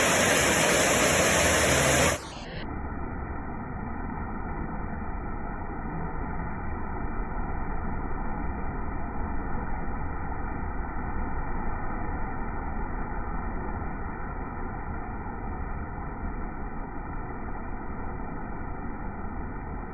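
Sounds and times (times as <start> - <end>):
rain hissing: 0.0 - 2.6.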